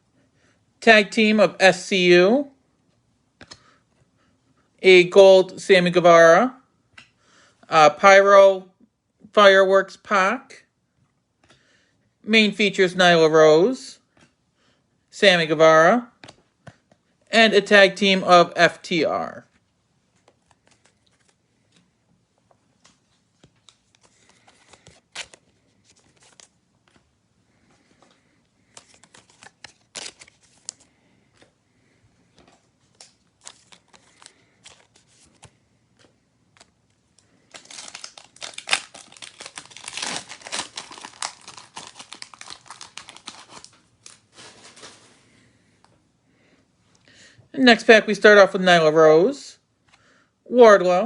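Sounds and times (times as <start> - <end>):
cards being handled: 16.2 - 17.3, 19.5 - 31.6, 32.3 - 45.2
wrapper crinkling and tearing: 23.6 - 26.6, 28.6 - 30.9, 32.9 - 35.5, 36.5 - 45.2.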